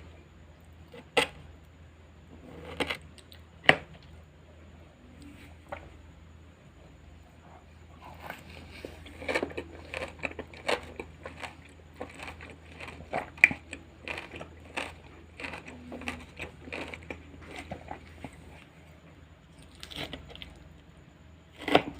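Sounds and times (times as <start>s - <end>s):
crunching raw vegetables: 7.8s - 21.9s.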